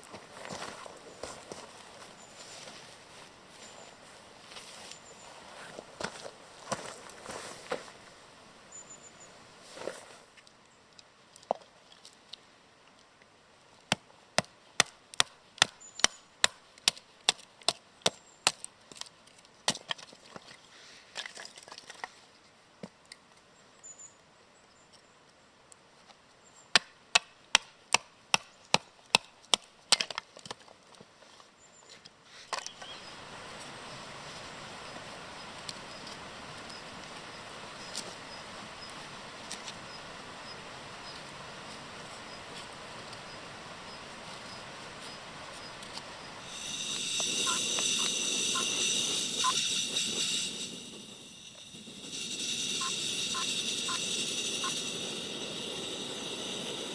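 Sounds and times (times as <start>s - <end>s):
firewood being chopped: 13.9s - 20.1s, 26.8s - 30.6s.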